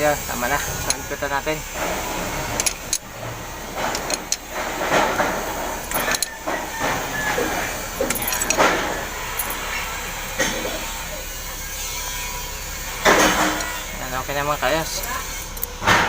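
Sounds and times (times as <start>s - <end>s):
metal tools scraping: 0.0s - 16.0s
metal tools clicking: 0.4s - 9.9s, 13.1s - 13.8s.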